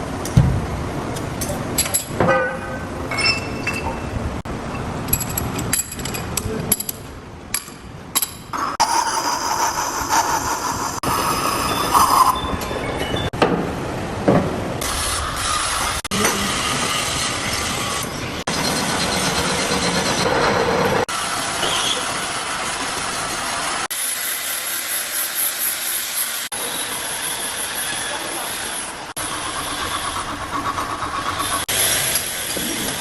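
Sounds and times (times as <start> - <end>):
machinery metallic squeal: 8.6 - 13.3.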